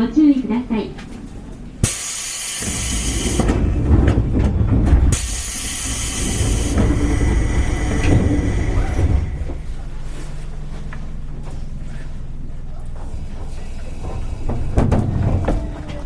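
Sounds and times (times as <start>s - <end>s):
electric train steady hum: 0.0s - 16.0s
train low rumbling: 0.0s - 16.0s
clunks: 1.0s - 16.0s
air hissing bursts: 1.8s - 3.6s, 5.1s - 9.5s.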